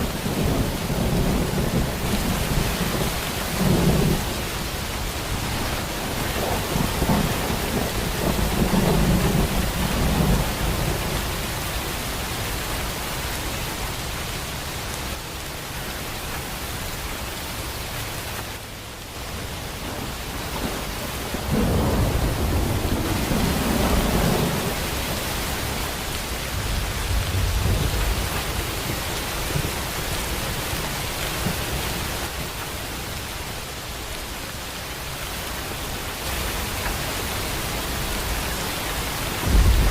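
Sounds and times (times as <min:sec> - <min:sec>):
thunder rumbling: 0:00.0 - 0:04.6, 0:05.2 - 0:11.6, 0:19.3 - 0:30.5, 0:39.3 - 0:39.9
heavy rain hissing: 0:00.0 - 0:39.9.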